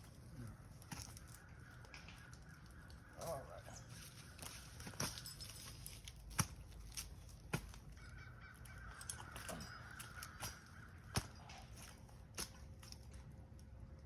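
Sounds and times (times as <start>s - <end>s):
crow cawing: 7.9s - 11.7s.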